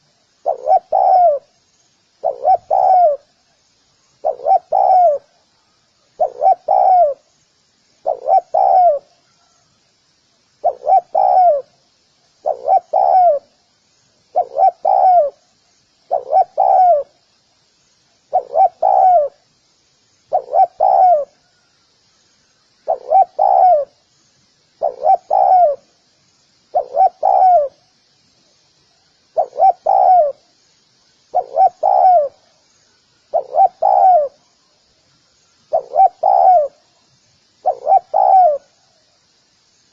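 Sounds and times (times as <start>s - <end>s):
dove cooing: 0.0s - 1.5s, 2.2s - 3.3s, 4.2s - 5.4s, 6.2s - 7.2s, 8.0s - 9.6s, 10.6s - 11.7s, 12.4s - 13.5s, 14.3s - 15.4s, 16.1s - 17.2s, 18.3s - 19.4s, 20.3s - 21.4s, 22.9s - 24.0s, 24.8s - 25.9s, 26.7s - 27.8s, 29.4s - 30.4s, 31.3s - 32.4s, 33.3s - 34.4s, 35.7s - 36.8s, 37.6s - 38.8s
faint high chirping: 0.0s - 39.9s.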